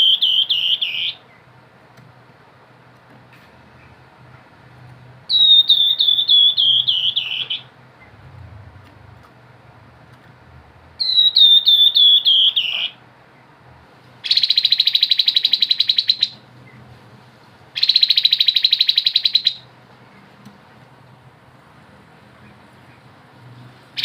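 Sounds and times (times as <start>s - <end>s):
bird whistled notes and trills: 0.0s - 1.4s, 5.3s - 8.1s, 11.0s - 13.0s, 14.2s - 16.8s, 17.8s - 19.7s.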